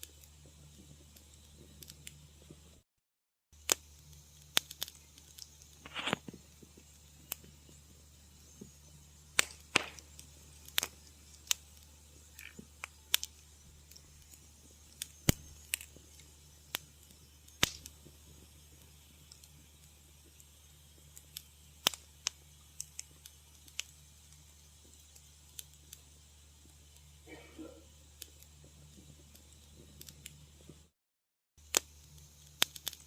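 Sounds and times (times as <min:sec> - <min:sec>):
wood fire crackling: 0:00.0 - 0:02.8, 0:03.6 - 0:30.9, 0:31.6 - 0:33.0
faint low hum: 0:03.8 - 0:30.9.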